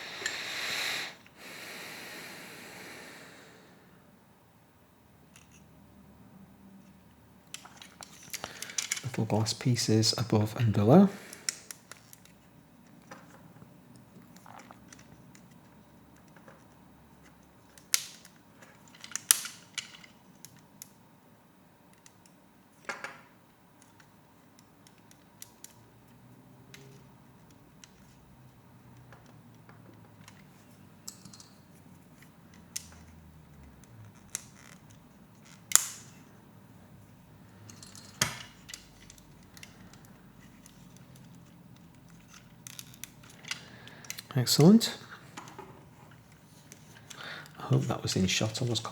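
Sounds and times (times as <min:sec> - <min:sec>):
plastic pieces clicking and rattling: 0:07.5 - 0:09.2, 0:17.7 - 0:20.6, 0:37.7 - 0:44.3.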